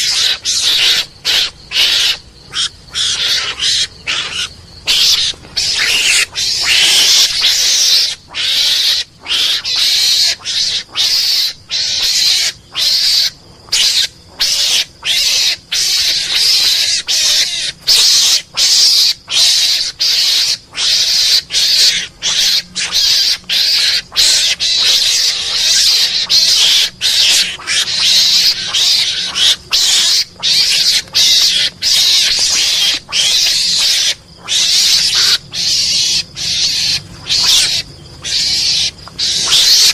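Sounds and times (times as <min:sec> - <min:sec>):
mongoose hissing chatter calls: 0:00.0 - 0:39.9.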